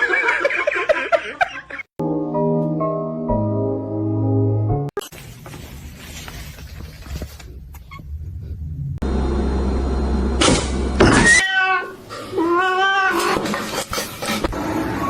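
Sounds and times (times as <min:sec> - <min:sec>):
cat meowing: 0:11.2 - 0:13.4.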